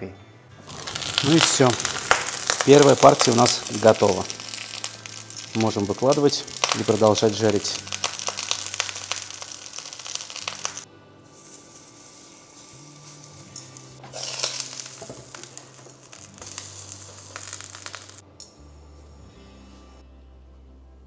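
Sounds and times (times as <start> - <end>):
fritters sizzling in oil: 0.7 - 10.8, 13.5 - 18.2.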